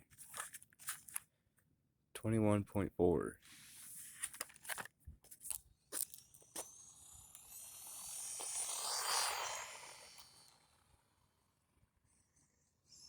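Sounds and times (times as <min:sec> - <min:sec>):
toy truck motor whining: 0:06.0 - 0:13.0.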